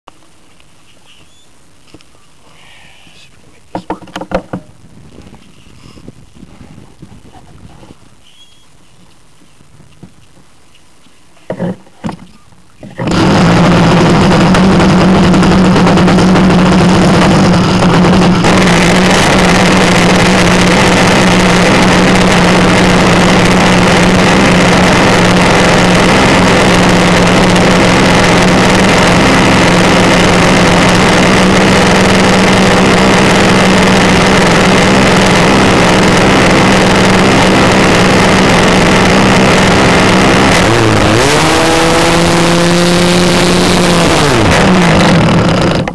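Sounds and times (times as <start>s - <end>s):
model airplane engine running: 13.0s - 45.9s.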